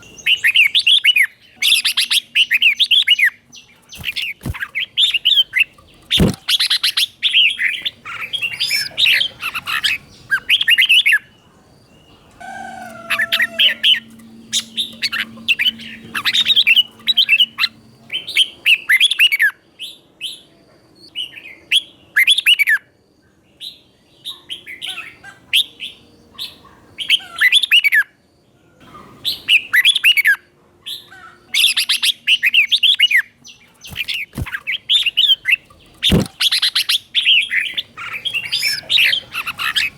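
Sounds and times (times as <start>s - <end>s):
bird singing whistled notes: 0.0s - 22.9s, 31.6s - 39.9s.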